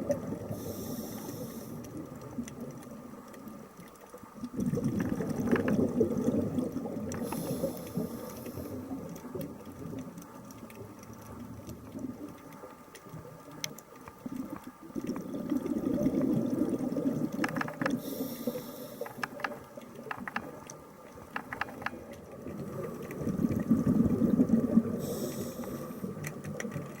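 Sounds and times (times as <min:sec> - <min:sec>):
bubbling exhaled air underwater: 0:00.0 - 0:03.2, 0:04.4 - 0:10.2, 0:14.2 - 0:19.6, 0:21.7 - 0:27.0
faint clicks: 0:00.0 - 0:27.0
regulator inhalation hiss: 0:00.5 - 0:01.8, 0:07.2 - 0:08.8, 0:18.0 - 0:19.2, 0:25.0 - 0:26.2.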